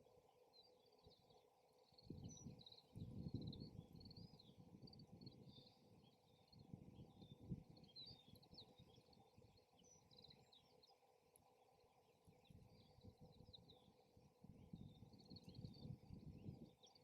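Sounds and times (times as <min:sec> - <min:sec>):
faint birds chirping: 0:00.0 - 0:17.0
wind rumble on microphone: 0:02.0 - 0:09.4, 0:12.3 - 0:17.0.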